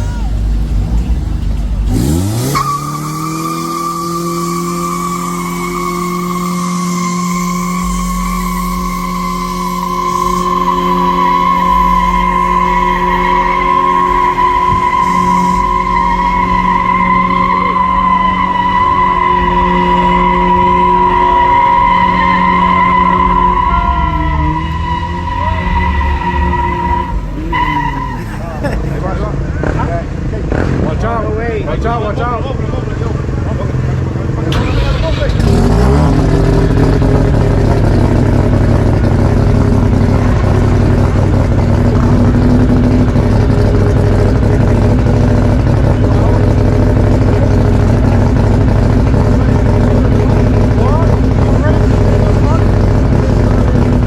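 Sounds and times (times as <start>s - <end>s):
car engine at high revs: 0.4s - 54.0s
tyres squealing: 1.9s - 28.7s, 33.9s - 36.8s.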